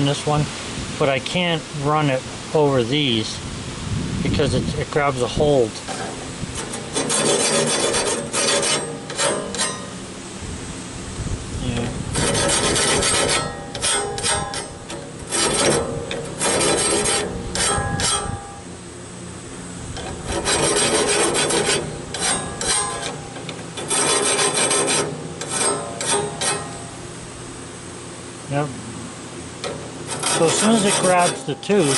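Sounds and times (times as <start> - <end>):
low steady hum: 0.0 - 31.9
air grinder sharpening saw blade: 5.9 - 10.0, 12.1 - 18.6, 20.0 - 26.9, 29.6 - 31.9.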